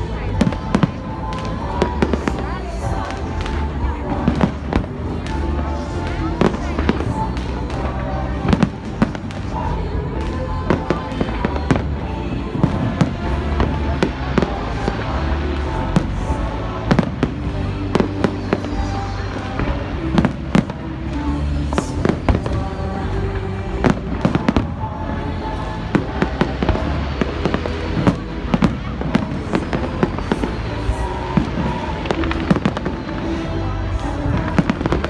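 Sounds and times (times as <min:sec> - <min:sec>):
fireworks bangs and crackles: 0:00.0 - 0:35.0
music playing: 0:00.0 - 0:35.0.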